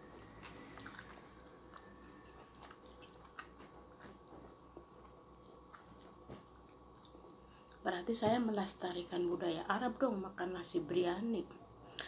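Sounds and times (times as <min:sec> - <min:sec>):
person chewing: 0:00.0 - 0:07.8.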